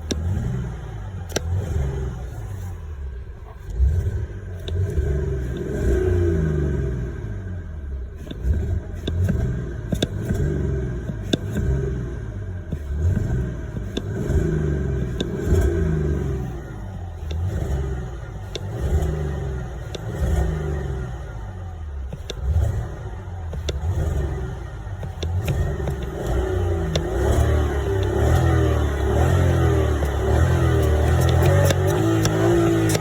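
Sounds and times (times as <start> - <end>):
sharp clicks: 0.0 - 0.5, 1.2 - 1.9, 16.5 - 20.7, 22.1 - 33.0
car engines revving: 0.0 - 33.0.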